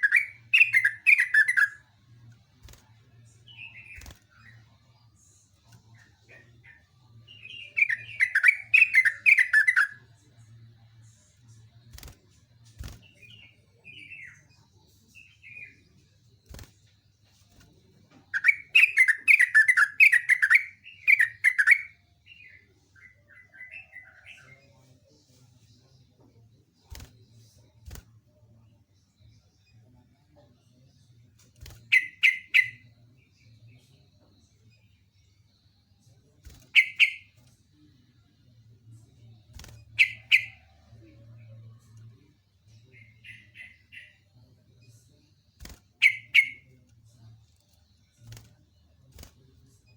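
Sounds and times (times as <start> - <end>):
bird singing: 0.0 - 1.8, 3.5 - 10.3, 18.3 - 24.8, 31.8 - 37.9, 39.2 - 45.0, 46.0 - 47.3.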